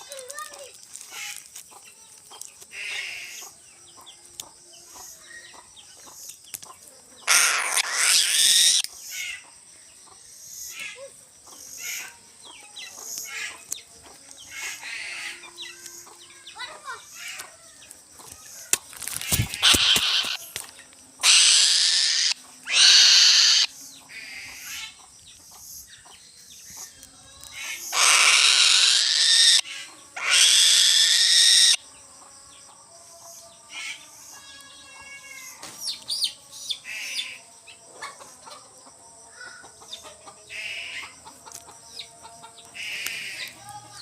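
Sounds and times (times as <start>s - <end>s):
bird of prey screeching: 7.3s - 9.3s, 19.0s - 20.5s, 21.2s - 23.7s, 27.6s - 31.8s
chicken harsh call: 21.2s - 23.7s, 28.0s - 29.6s.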